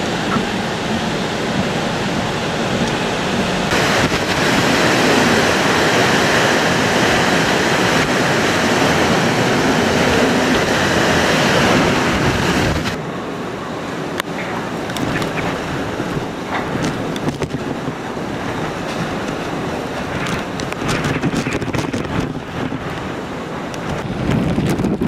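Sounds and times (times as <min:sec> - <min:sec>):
storm wind buffeting microphone: 0:00.0 - 0:25.0.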